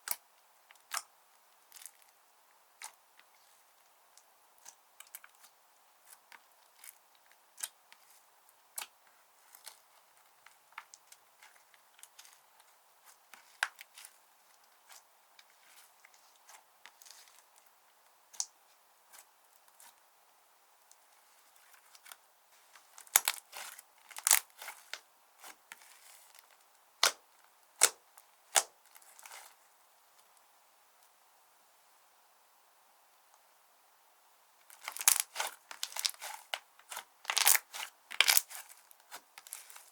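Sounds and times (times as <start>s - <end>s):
slime popping and crackling: 23.0s - 25.6s, 27.8s - 28.7s, 34.7s - 39.9s.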